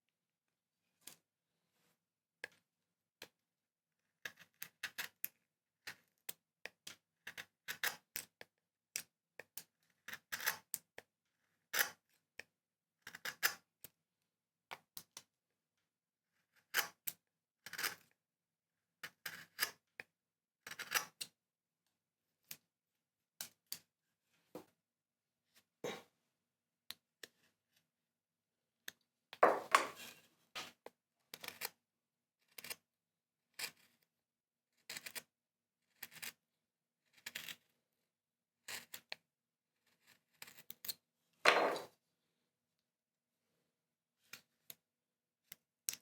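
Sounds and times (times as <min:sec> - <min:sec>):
carving tools cutting wood: 0:19.0 - 0:19.8, 0:35.9 - 0:36.4.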